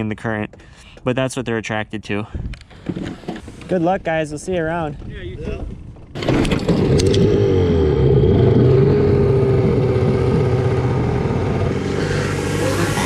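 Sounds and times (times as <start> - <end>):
outboard motor running: 6.2 - 11.8.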